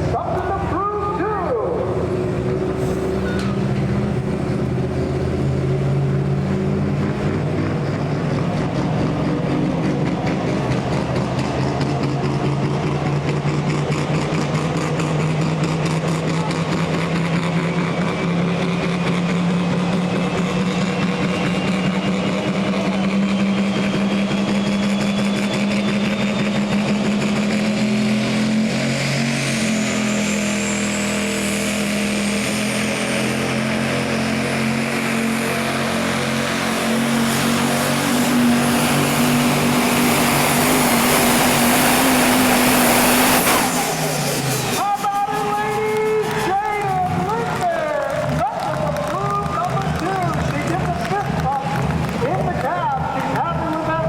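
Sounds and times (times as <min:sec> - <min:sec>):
diesel engine running under load: 0:00.0 - 0:54.0
high whine rising in pitch: 0:19.5 - 0:46.6.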